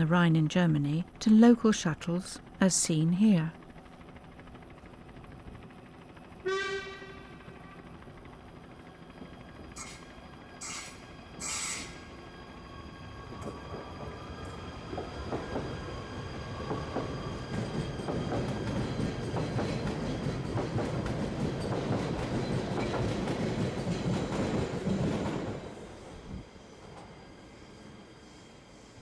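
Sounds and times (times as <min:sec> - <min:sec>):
electric train passing: 0:00.0 - 0:29.0.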